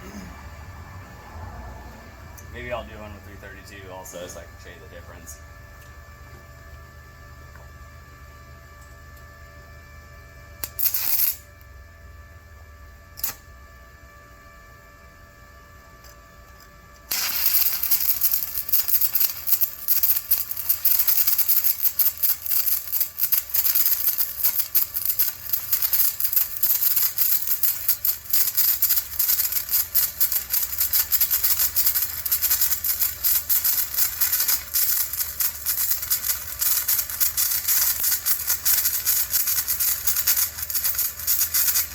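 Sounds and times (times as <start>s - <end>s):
welding arc crackling: 10.6s - 11.6s, 13.2s - 13.4s, 17.1s - 41.9s.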